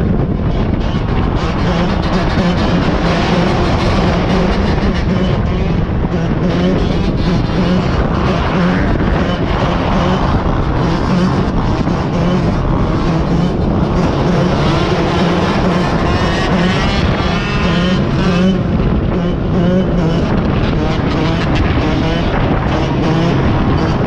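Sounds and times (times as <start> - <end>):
motorcycle engine running: 0.0 - 24.0
wind rushing over microphone: 0.0 - 24.0.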